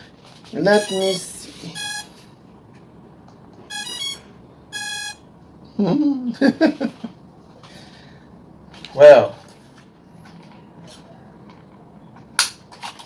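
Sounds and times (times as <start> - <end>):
short electronic beeps: 0.7 - 2.2, 3.7 - 5.3.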